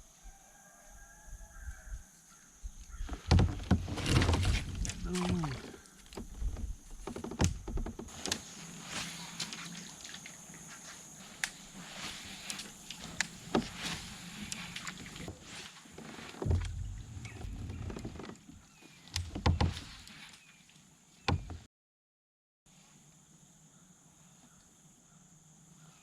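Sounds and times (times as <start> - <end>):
gear clicking and knocking in kayak: 3.0 - 10.6, 12.4 - 20.1, 21.3 - 21.7
low thumps: 16.4 - 18.3.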